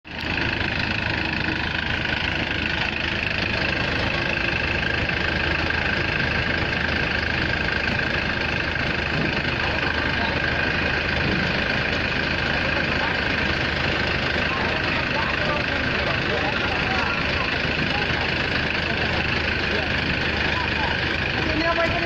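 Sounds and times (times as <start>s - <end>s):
combine harvester engine drone: 0.0s - 22.0s.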